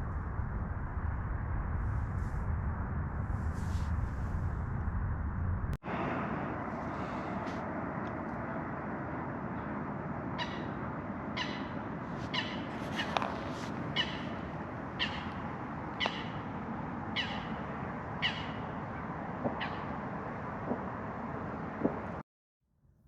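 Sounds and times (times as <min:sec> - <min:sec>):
bird calling: 0:10.3 - 0:19.9.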